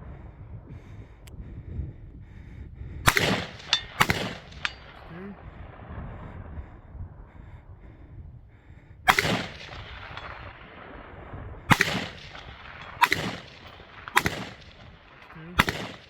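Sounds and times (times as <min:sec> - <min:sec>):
rifle shots with echo: 0:03.1 - 0:06.2, 0:09.1 - 0:16.0.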